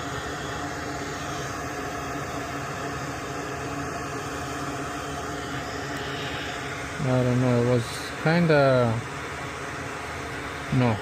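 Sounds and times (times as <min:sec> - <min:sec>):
fan blowing air: 0:00.0 - 0:11.0.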